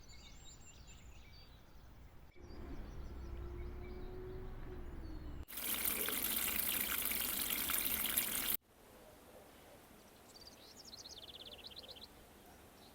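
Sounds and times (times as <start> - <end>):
running water splashing: 5.5 - 8.6.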